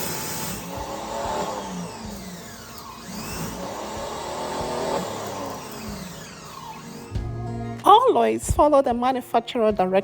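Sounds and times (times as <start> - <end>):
power washer running: 0.0 - 7.4.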